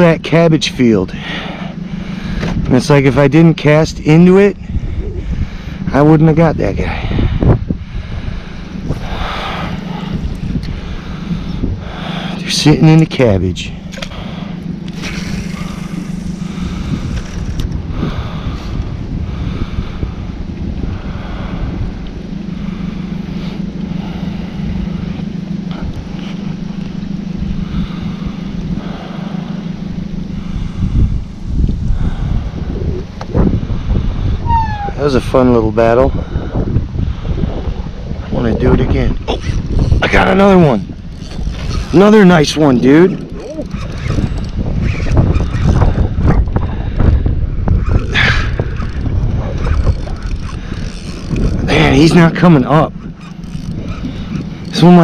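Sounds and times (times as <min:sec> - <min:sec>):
boat motor humming: 0:00.0 - 0:55.0
wind noise on microphone: 0:00.0 - 0:55.0
short hissing burst: 0:15.0 - 0:17.0.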